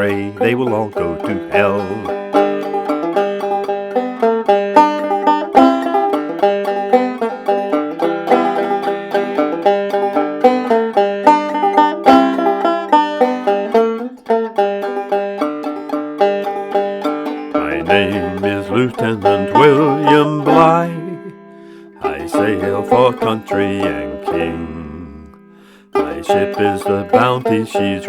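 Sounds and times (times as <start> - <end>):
banjo picking: 0.0 - 28.0.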